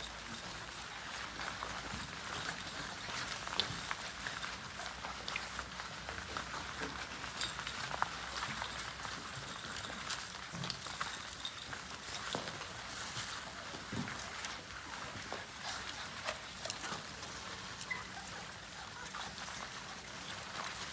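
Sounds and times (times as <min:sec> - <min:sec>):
paws and claws pattering: 0:00.0 - 0:20.9
puppies squeaking: 0:14.4 - 0:20.9.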